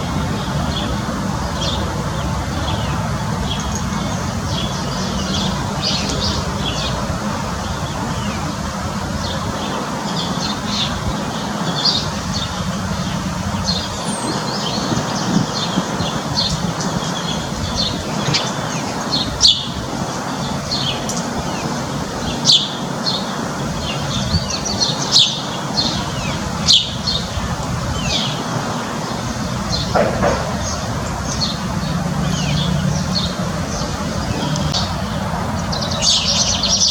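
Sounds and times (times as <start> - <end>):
birds chirping: 0.0 - 36.9.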